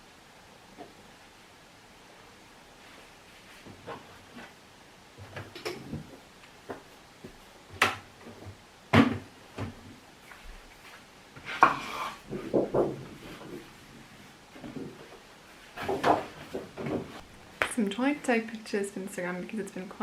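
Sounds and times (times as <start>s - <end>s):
objects knocking on hard surface: 11.5s - 13.2s
objects clattering: 14.6s - 17.2s.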